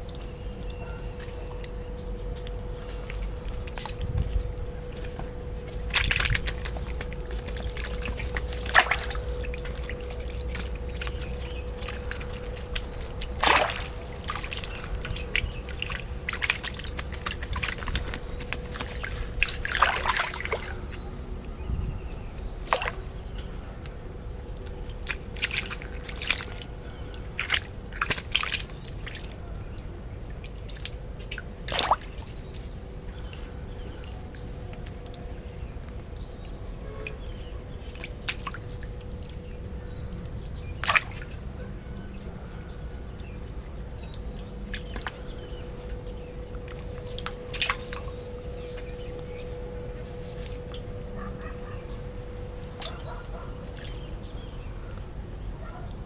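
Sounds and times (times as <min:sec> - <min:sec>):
faint hum: 0:00.0 - 0:56.0
water splashing and dripping: 0:00.0 - 0:56.0.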